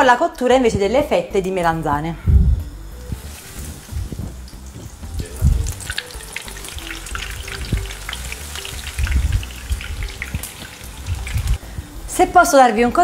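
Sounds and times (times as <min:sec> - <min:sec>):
low thumps: 0:01.9 - 0:06.0, 0:06.6 - 0:12.0
oil sizzling in a pan: 0:03.0 - 0:12.7.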